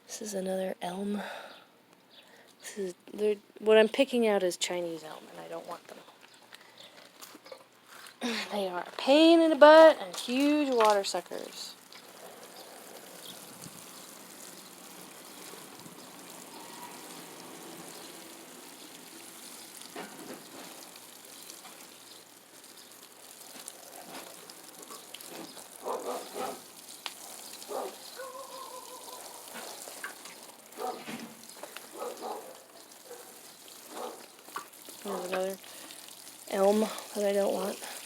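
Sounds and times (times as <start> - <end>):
water gushing from a hose: 8.5 - 38.0
weeds being pulled from soil: 10.0 - 38.0.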